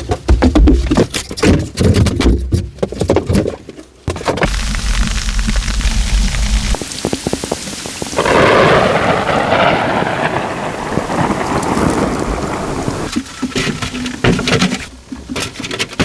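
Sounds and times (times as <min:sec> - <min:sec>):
thunder rumbling: 0:04.4 - 0:13.2
steady rain: 0:04.4 - 0:15.1.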